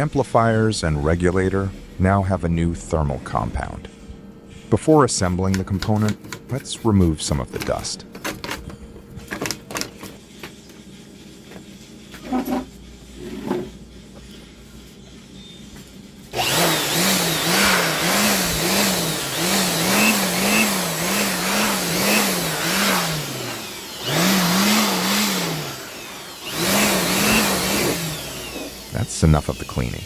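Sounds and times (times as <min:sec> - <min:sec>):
electric dust blower running: 0:16.3 - 0:30.0.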